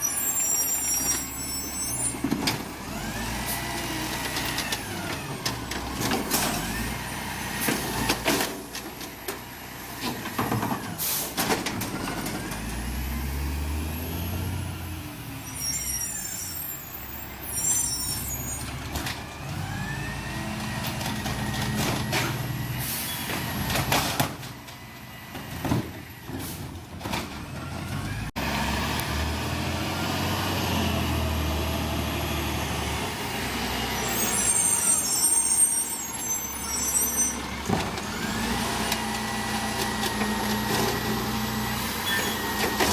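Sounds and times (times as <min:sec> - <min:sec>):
hydraulic whines: 0:00.0 - 0:05.4, 0:14.9 - 0:20.5, 0:33.7 - 0:42.9
air brake hisses: 0:11.0 - 0:11.4
truck engine revving: 0:12.0 - 0:15.3, 0:27.4 - 0:35.0.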